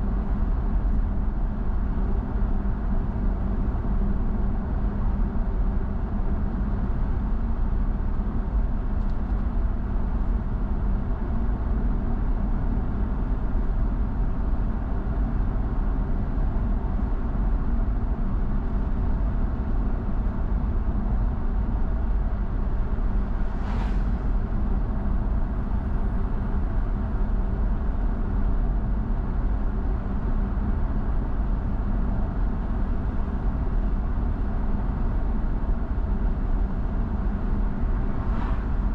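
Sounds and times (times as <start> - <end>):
car driving road noise: 22.0 - 38.9
brief hiss: 23.5 - 24.4, 38.2 - 38.9.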